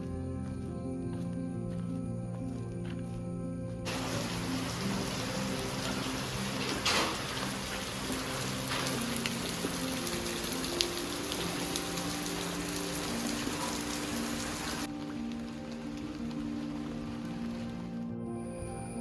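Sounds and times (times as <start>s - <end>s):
soft background music: 0.0s - 19.0s
steady rainfall: 3.9s - 18.0s.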